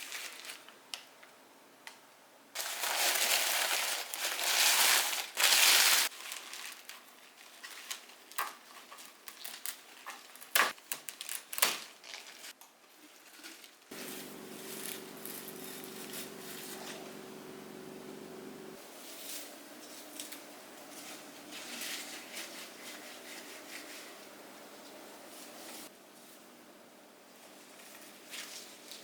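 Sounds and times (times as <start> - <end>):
rustling and crinkling: 0.0 - 1.1, 2.6 - 17.4, 18.8 - 26.5, 27.3 - 29.0
steady hum: 13.9 - 27.8.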